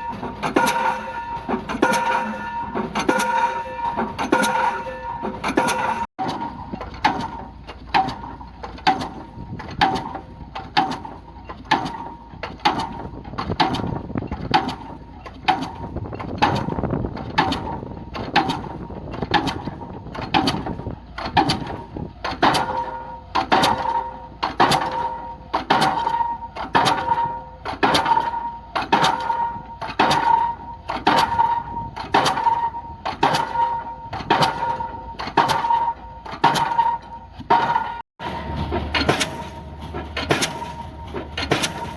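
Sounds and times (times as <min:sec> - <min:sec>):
metallic ring: 0:00.0 - 0:06.7, 0:34.7 - 0:41.9
pile hammer striking: 0:00.0 - 0:07.4, 0:33.2 - 0:41.9.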